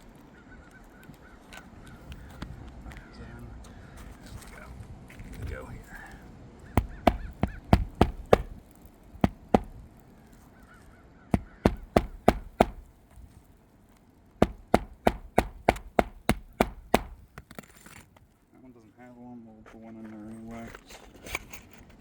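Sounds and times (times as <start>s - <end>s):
hammer driving nails: 6.8s - 8.6s, 9.2s - 9.8s, 11.4s - 12.9s, 14.4s - 17.3s.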